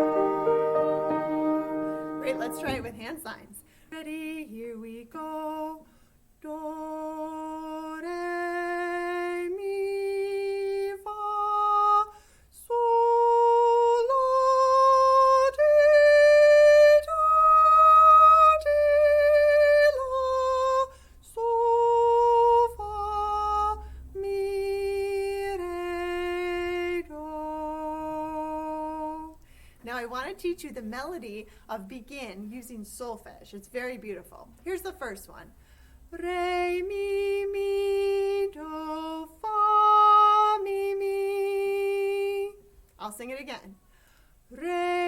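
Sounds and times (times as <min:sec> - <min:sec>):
woman singing a scale: 0:00.0 - 0:05.8.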